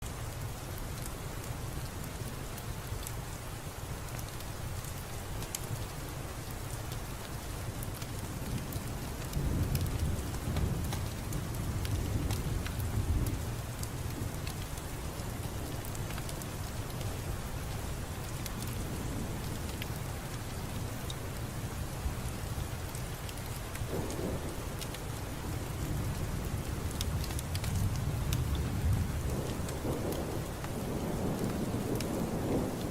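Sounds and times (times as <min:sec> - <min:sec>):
steady rainfall: 0:00.0 - 0:32.9
raindrops ticking: 0:00.1 - 0:32.9
low rolling thunder: 0:07.6 - 0:20.9, 0:23.8 - 0:32.9.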